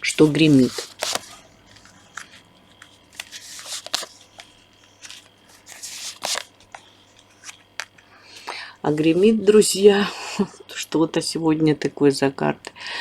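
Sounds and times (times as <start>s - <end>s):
cards being shuffled: 0.1s - 8.0s.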